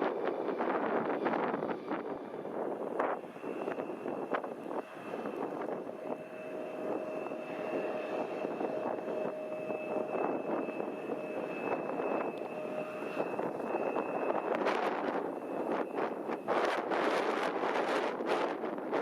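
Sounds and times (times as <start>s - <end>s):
jet engines whining: 0.0s - 19.0s
wind on microphone: 0.0s - 19.0s.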